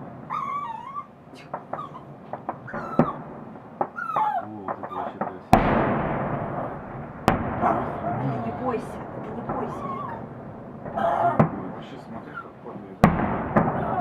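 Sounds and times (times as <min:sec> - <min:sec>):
firework crackling: 0:00.0 - 0:14.0
fireworks cracking: 0:00.0 - 0:14.0
loud firework bang: 0:00.0 - 0:14.0
pet whimpering: 0:00.3 - 0:03.2, 0:03.9 - 0:05.2, 0:07.6 - 0:11.6.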